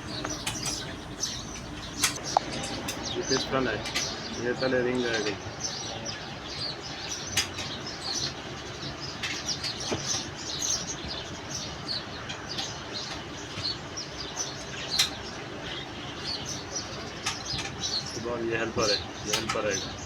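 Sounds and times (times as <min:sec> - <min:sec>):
small birds chirping: 0:00.0 - 0:20.0
sharp clicks: 0:00.1 - 0:04.2.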